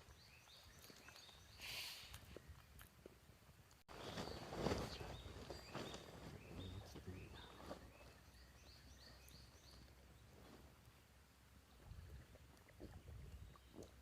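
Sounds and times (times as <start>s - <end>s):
rustling handling noises: 3.9s - 8.2s.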